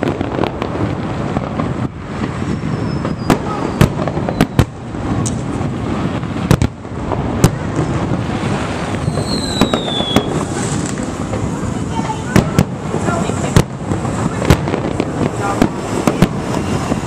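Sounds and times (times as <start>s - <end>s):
background noise: 0.0s - 17.0s
firework shells bursting: 0.0s - 17.0s
faint whistle: 2.6s - 4.6s, 9.0s - 10.4s.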